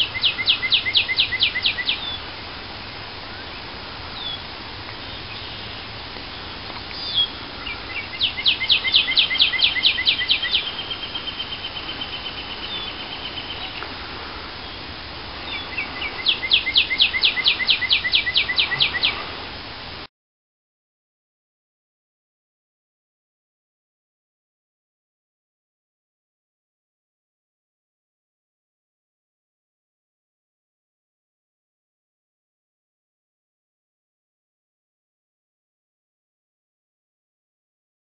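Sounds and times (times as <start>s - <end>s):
thin high bird trill: 0.0s - 2.3s, 5.1s - 13.9s, 14.6s - 19.2s
songbird singing rapid high notes: 0.0s - 2.4s, 4.2s - 13.9s, 14.6s - 19.2s.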